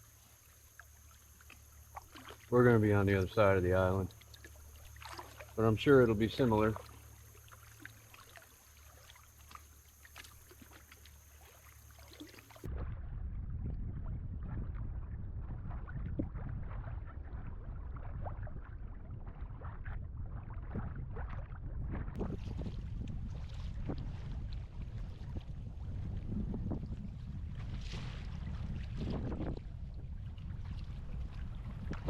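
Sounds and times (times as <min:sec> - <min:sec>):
kayak paddle splashing: 0:00.0 - 0:13.1, 0:14.4 - 0:32.0
wind on microphone: 0:12.6 - 0:32.0.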